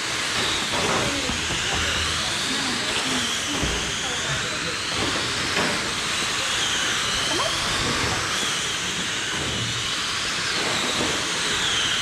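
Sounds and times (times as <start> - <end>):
electric rc car motors whining: 0.0 - 12.0.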